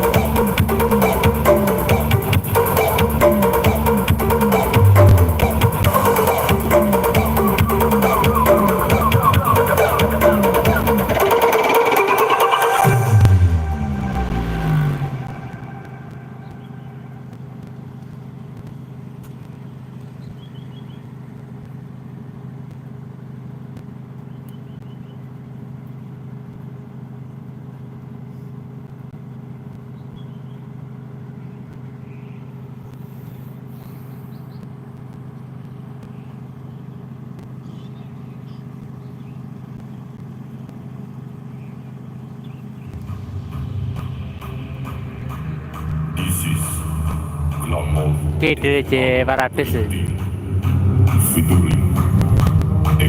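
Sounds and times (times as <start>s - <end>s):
deeper low sound: 0.0s - 11.3s, 12.8s - 18.8s, 42.7s - 53.0s
steady low hum: 0.0s - 11.4s, 12.7s - 53.0s.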